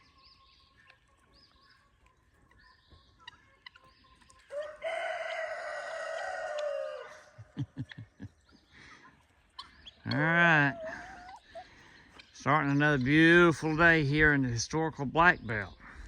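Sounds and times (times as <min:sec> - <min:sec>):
rooster crowing: 0:04.5 - 0:07.4.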